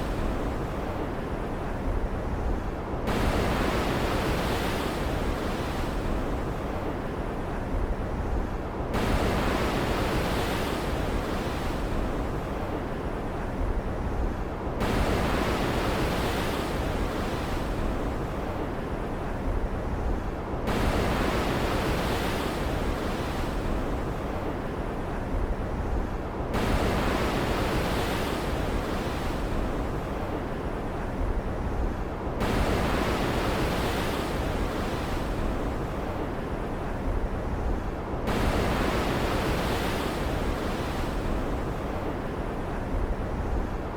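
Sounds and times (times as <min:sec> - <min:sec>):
wind: 0:00.0 - 0:43.9.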